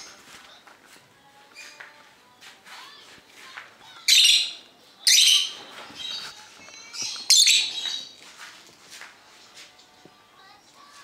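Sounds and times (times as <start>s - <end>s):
harsh high-pitched bird calls: 4.1s - 8.1s.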